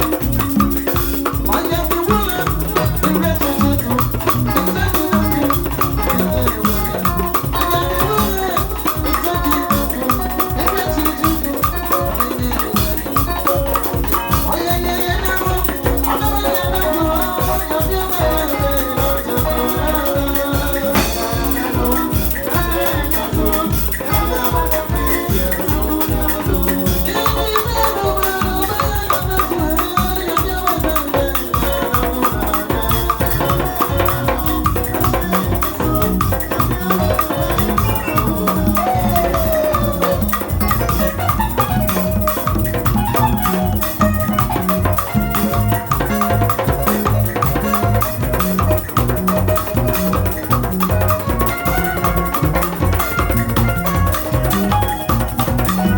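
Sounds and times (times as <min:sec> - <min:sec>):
drums: 0:00.0 - 0:55.9
instrumental band music: 0:00.0 - 0:55.9
shaker: 0:00.0 - 0:55.9
heavy bass line: 0:02.1 - 0:08.2, 0:20.9 - 0:22.4, 0:33.2 - 0:55.9.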